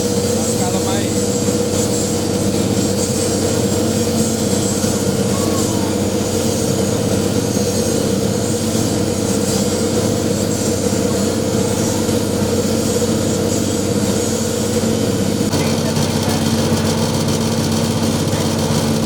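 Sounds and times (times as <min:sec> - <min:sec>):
press machine humming and rattling: 0:00.0 - 0:19.0.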